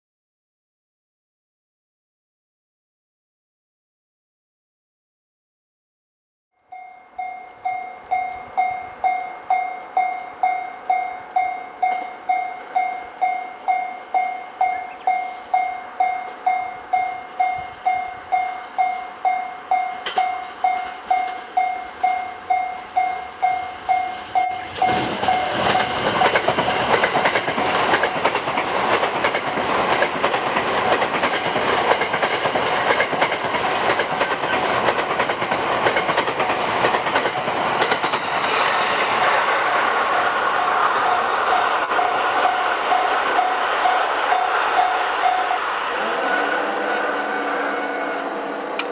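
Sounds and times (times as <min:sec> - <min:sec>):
level crossing warning bell: 0:06.6 - 0:30.4, 0:40.8 - 0:48.9
electric train passing: 0:06.7 - 0:48.9
wheels clattering over rail joints: 0:24.4 - 0:48.9.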